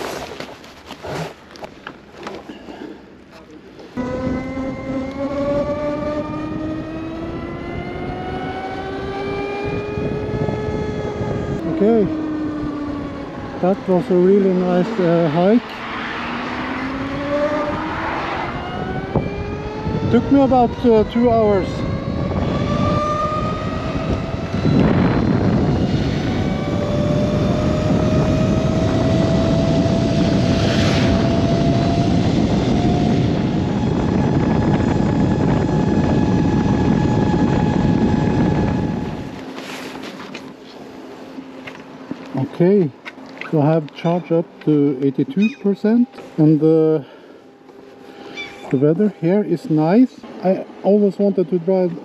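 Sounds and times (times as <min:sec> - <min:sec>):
wind on microphone: 0:04.0 - 0:40.2
electric motorcycle motor whine: 0:04.0 - 0:46.7.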